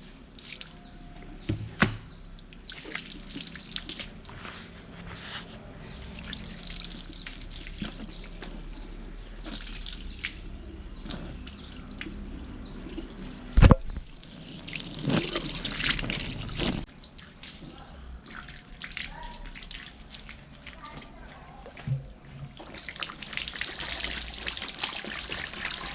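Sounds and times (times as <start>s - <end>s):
water trickling and dripping: 0.0s - 1.4s, 2.3s - 4.3s, 6.0s - 25.9s
water pouring: 6.0s - 20.7s, 22.6s - 25.9s.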